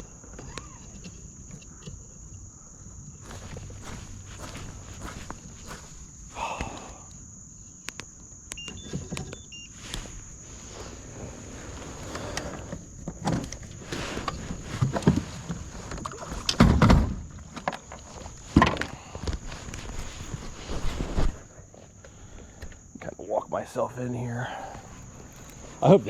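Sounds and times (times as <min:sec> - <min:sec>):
kayak hull scraping riverbed: 0:03.2 - 0:06.1, 0:09.8 - 0:21.6, 0:24.4 - 0:26.0.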